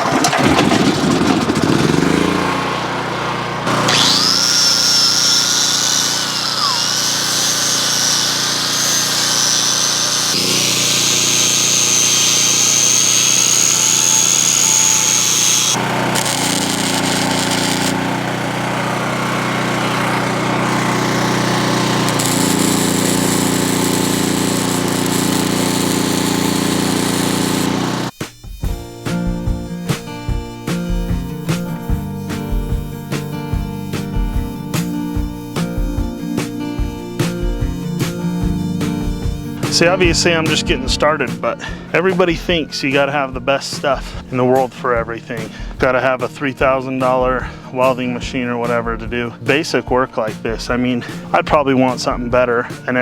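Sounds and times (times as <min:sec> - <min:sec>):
portable generator running: 0:00.0 - 0:28.1
arc welding crackling and sizzling: 0:03.9 - 0:18.1, 0:20.6 - 0:29.2.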